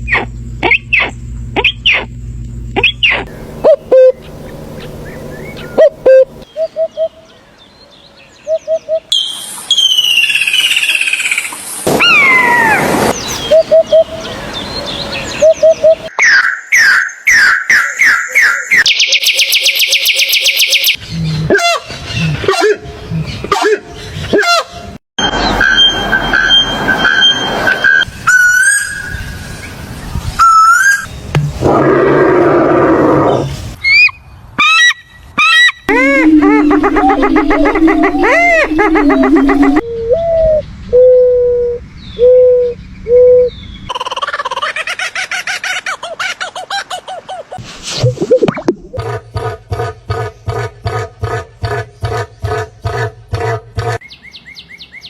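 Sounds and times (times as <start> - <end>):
birds calling low notes: 0.0 - 7.3, 35.9 - 44.0, 48.6 - 54.2
bird rapid falling notes: 35.9 - 40.4.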